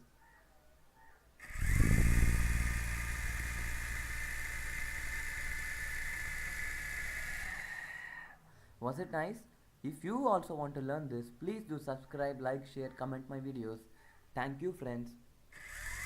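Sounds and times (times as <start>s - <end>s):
man imitating helicopter rotor: 1.4s - 8.2s.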